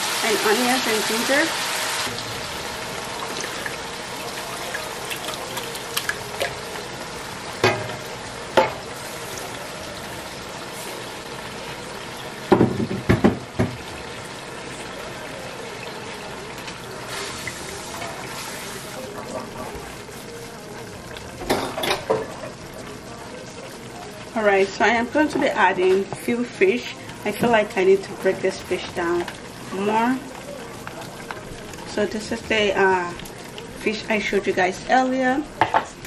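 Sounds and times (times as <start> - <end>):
puree frying in oil: 0.0 - 36.0.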